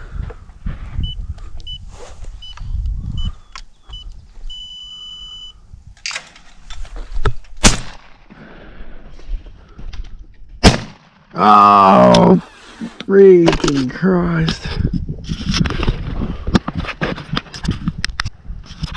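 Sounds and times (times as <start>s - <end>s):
electronic beeps: 1.0s - 5.6s
shotgun firing: 7.6s - 8.2s, 10.6s - 11.2s.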